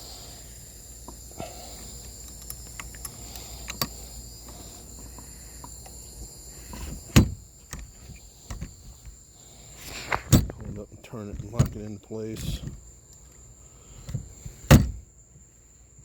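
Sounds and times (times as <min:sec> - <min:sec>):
small clicks and knocks: 0:01.0 - 0:06.0, 0:06.6 - 0:09.2
loud metal clunk: 0:14.7 - 0:15.0.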